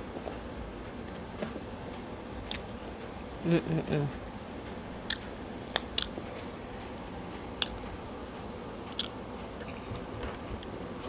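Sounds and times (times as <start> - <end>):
faint room hum: 0.0 - 11.0
person chewing food: 5.0 - 6.2, 7.6 - 7.8, 8.9 - 9.2.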